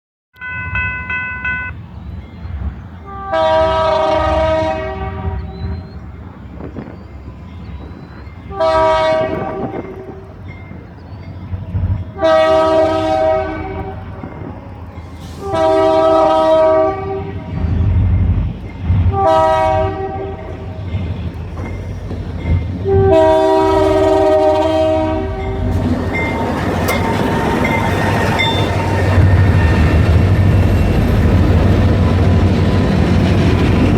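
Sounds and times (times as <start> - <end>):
locomotive engines rumbling: 0.4 - 33.9
train wheel noise: 0.4 - 33.9
locomotive air horn blasts: 3.0 - 5.9, 8.5 - 10.3, 12.2 - 14.2, 15.1 - 17.6, 19.1 - 20.8, 22.8 - 30.0.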